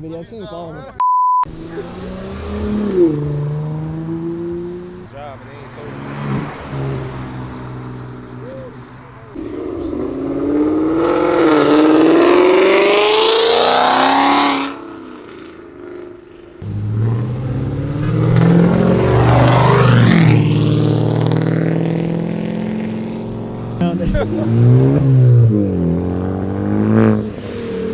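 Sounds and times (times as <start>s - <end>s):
car accelerating hard: 1.5s - 27.9s
car engine revving: 1.5s - 27.9s
car engine idling: 16.6s - 19.8s.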